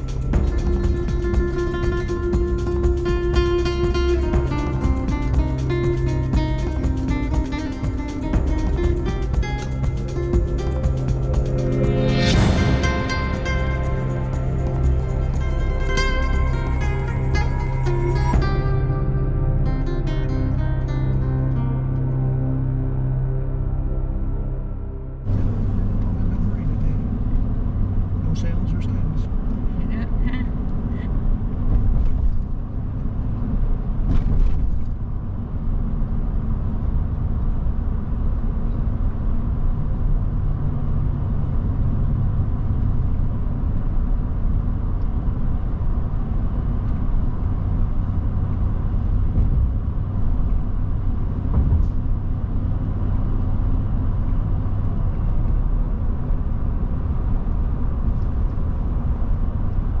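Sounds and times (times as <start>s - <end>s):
freight train rumbling past: 0.0s - 19.0s
brief sharp sound: 0.0s - 19.6s.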